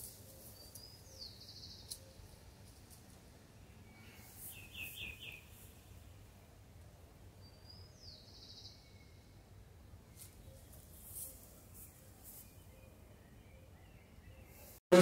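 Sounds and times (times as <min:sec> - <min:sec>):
small bird chirping: 0:00.0 - 0:02.7, 0:03.9 - 0:06.1.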